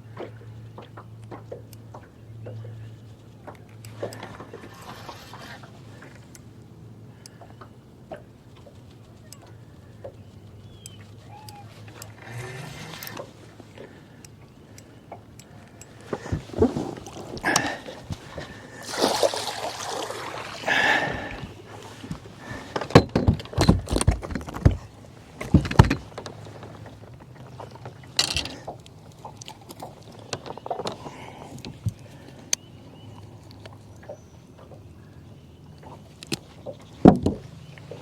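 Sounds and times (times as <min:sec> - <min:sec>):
water splashing: 0:16.0 - 0:22.6.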